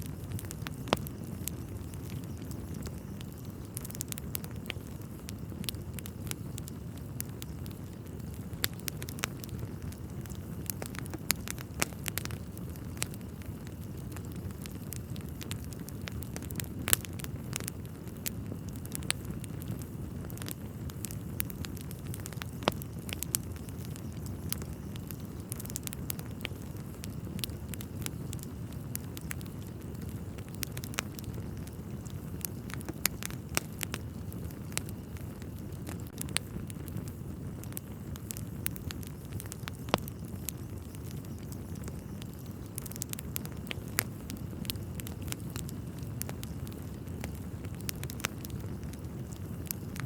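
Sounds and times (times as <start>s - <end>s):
fire flames rumbling: 0.0s - 50.0s
logs crackling and popping: 0.0s - 50.0s.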